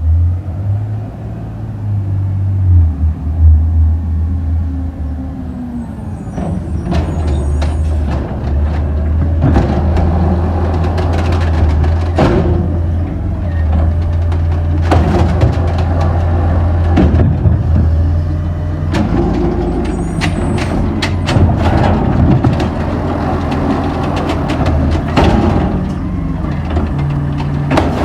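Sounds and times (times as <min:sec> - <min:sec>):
garbage truck engine idling: 0:04.2 - 0:28.0
knocks and clatter: 0:06.3 - 0:28.0.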